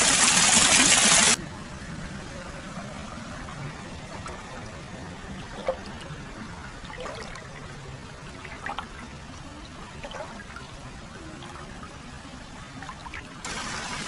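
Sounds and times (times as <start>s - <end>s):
water pouring: 0.0s - 1.4s
small splashes and drips: 6.8s - 13.6s.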